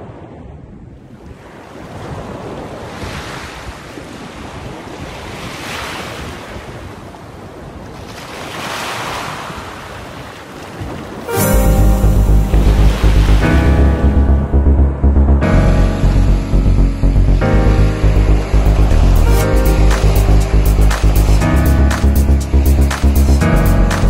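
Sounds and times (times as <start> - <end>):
surf washing onto a beach: 1.0 - 11.5
loud music: 11.3 - 24.0.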